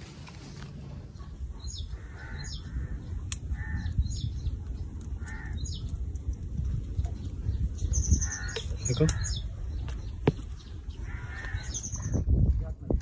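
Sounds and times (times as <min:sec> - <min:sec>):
net and branches rustling: 0:00.0 - 0:01.5
bird calling: 0:00.4 - 0:06.0, 0:07.6 - 0:12.3.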